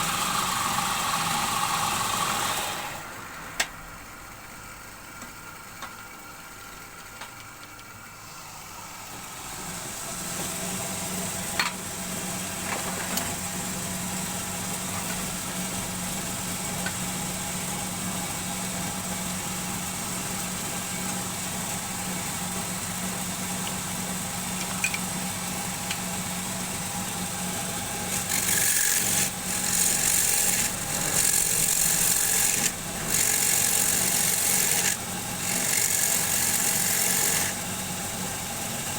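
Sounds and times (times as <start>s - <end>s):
wood lathe motor humming: 0.0s - 3.0s, 21.0s - 38.8s
turning tool rasping into wood: 28.0s - 37.6s.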